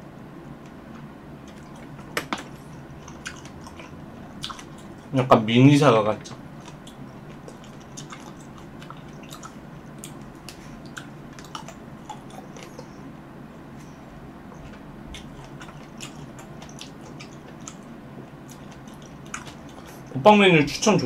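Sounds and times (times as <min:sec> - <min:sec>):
low background hum: 0:00.0 - 0:21.0
wet chewing of cherries: 0:01.4 - 0:05.1, 0:06.6 - 0:13.0, 0:15.1 - 0:20.1.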